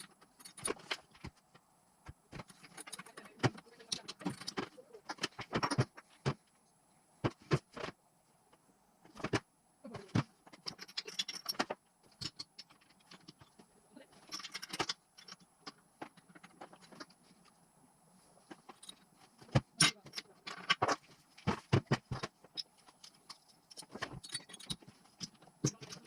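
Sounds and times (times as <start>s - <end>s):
metal tools clinking and scraping: 0.0s - 1.3s, 2.4s - 6.2s, 10.1s - 17.4s, 18.4s - 26.0s.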